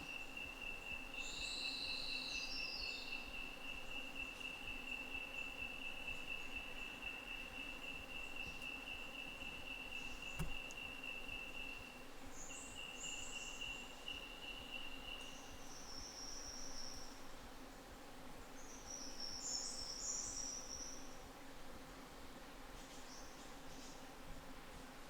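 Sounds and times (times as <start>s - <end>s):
insect buzzing calls: 0.0s - 17.7s.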